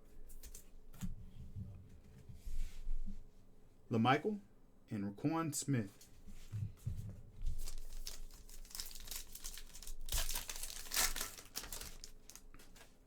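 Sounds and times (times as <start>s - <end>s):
wrapper crinkling and tearing: 7.6s - 13.0s.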